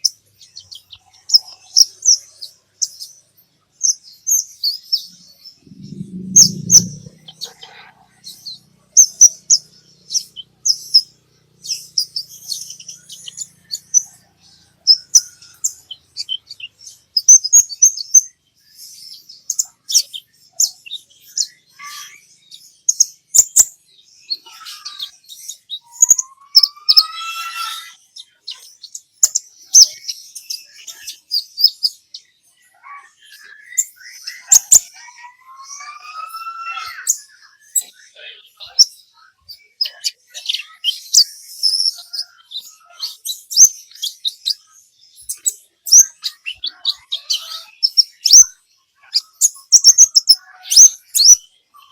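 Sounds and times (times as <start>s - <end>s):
high-pitched bird chirps and twitters: 0.0s - 51.9s
low rising whistle: 5.6s - 7.6s.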